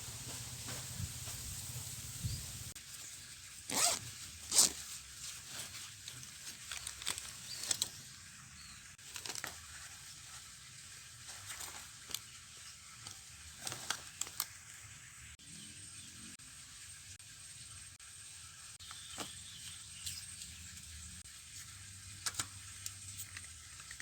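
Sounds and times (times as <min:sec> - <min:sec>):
faint high hiss: 0:00.0 - 0:04.0
rustles and crinkles: 0:00.0 - 0:15.0.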